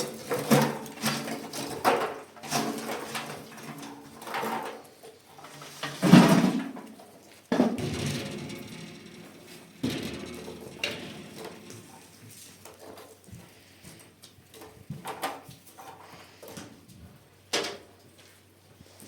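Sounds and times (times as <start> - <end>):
knocks and clatters: 7.6 - 13.1.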